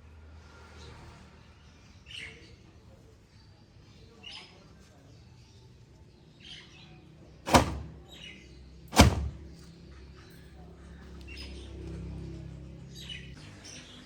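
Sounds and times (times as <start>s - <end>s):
sharp knocks: 7.5s - 8.0s, 8.9s - 9.5s.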